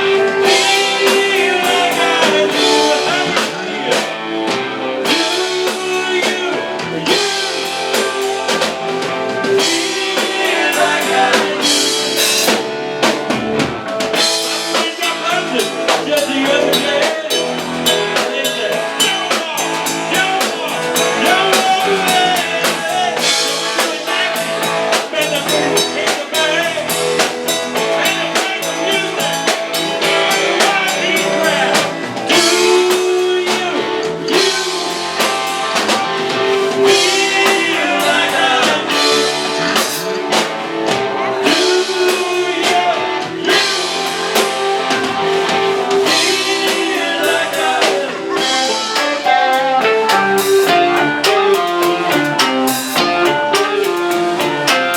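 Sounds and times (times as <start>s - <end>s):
drum kit: 0.0s - 54.9s
electric guitar bent notes: 0.0s - 54.9s
rock band playing blues: 0.0s - 54.9s.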